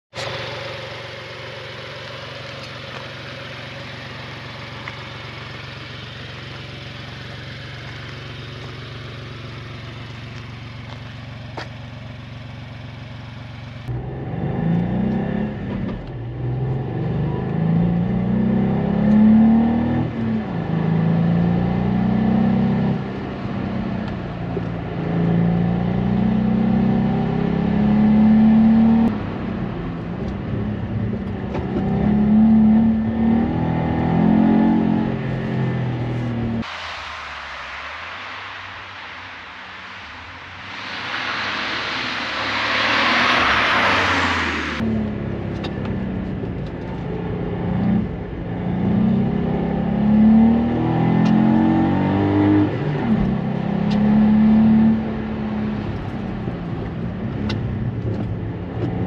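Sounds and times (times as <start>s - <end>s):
car engine idling: 0.1s - 14.0s, 34.8s - 48.6s, 54.9s - 58.9s
car accelerating through gears: 13.9s - 36.8s, 39.6s - 46.6s, 47.4s - 59.0s.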